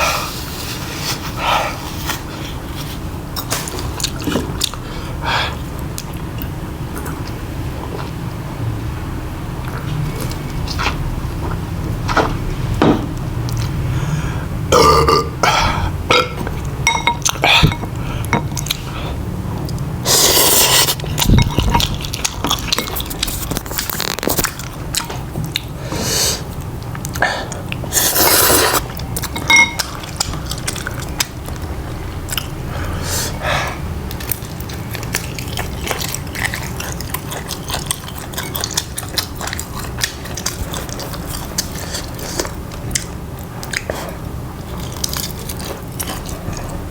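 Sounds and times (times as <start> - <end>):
person chewing food: 1.1 - 8.3, 9.6 - 12.4, 13.1 - 14.0, 14.8 - 46.9
crunchy chewing bursts: 18.6 - 25.8, 26.4 - 46.9.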